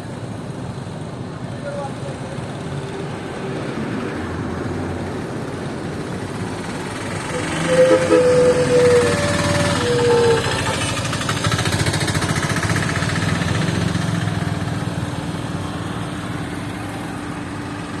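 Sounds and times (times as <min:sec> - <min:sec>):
vehicle engine throbbing: 0:04.4 - 0:18.0
short horn toots: 0:07.3 - 0:11.0.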